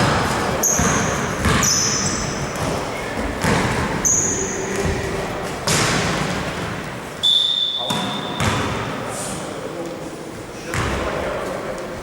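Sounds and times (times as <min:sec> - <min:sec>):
basketball bouncing on gym floor: 0:00.0 - 0:06.7, 0:07.8 - 0:08.9, 0:10.7 - 0:11.1
sneaker squeaks: 0:00.2 - 0:05.2, 0:07.2 - 0:08.9.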